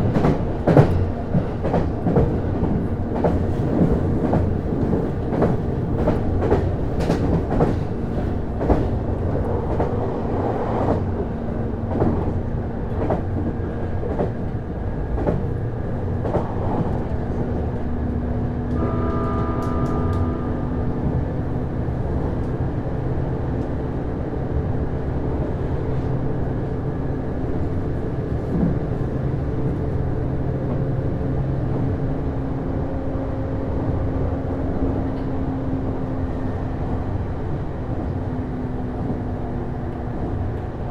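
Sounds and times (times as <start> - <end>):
brief pitched tone: 18.8 - 20.9.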